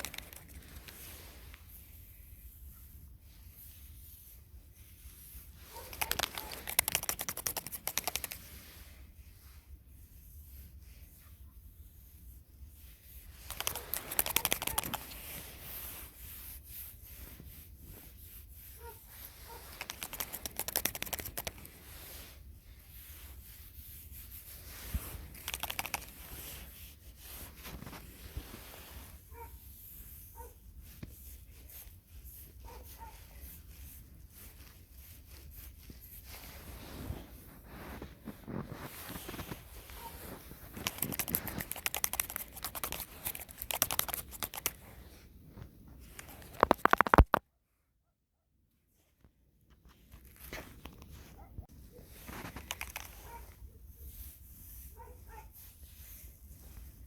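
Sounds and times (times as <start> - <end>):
rapid scratchy crunching: 5.6 - 8.5, 13.4 - 15.6, 19.4 - 21.8, 24.7 - 26.6, 37.6 - 45.0, 46.1 - 47.4, 52.2 - 53.5.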